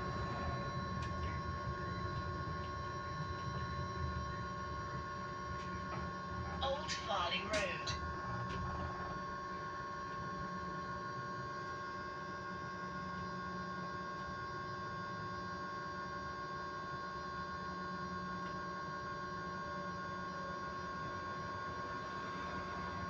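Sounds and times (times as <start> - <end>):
low rumble of bus: 0.0 - 11.8
electric bus high hum: 0.0 - 23.0.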